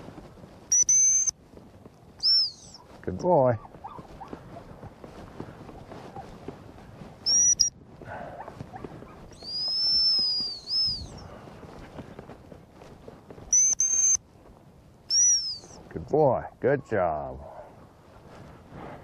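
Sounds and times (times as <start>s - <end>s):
dog training whistle: 0.7s - 1.3s, 2.2s - 2.8s, 7.3s - 7.7s, 9.4s - 11.1s, 13.5s - 14.2s, 15.1s - 15.8s.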